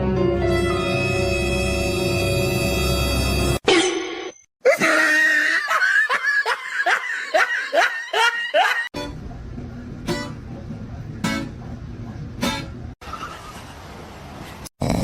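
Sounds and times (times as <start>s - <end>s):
person laughing hard: 4.6s - 8.9s.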